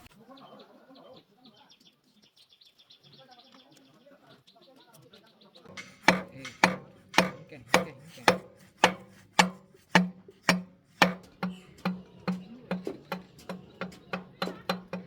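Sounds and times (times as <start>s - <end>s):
sharp knocks: 5.7s - 15.0s.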